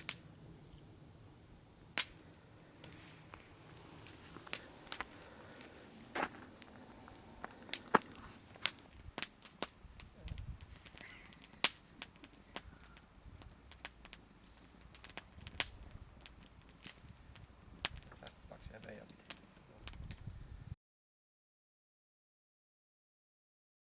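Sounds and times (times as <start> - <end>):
sharp irregular cracks and clicks: 1.9 - 5.7, 6.6 - 20.3.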